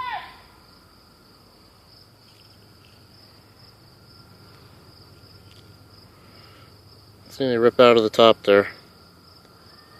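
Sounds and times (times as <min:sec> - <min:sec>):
faint insect chorus: 0:00.0 - 0:09.9.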